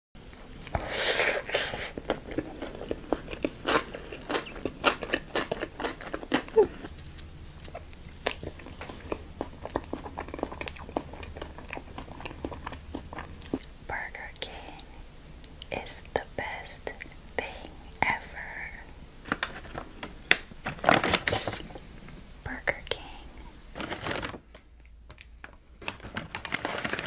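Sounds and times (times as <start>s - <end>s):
crunchy bite: 0.7s - 13.7s
chewing with mouth clicks: 1.5s - 13.8s.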